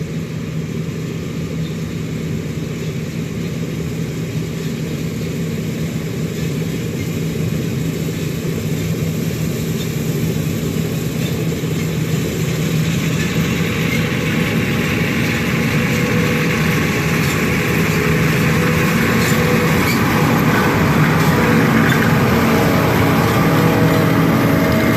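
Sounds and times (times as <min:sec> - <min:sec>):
combine harvester engine hum: 0:00.0 - 0:24.9
rushing rattling noise: 0:06.4 - 0:24.9.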